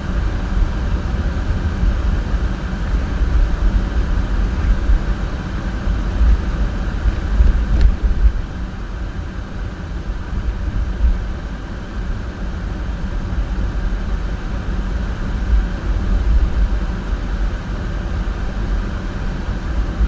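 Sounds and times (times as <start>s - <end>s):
car engine and road noise: 0.0s - 11.7s.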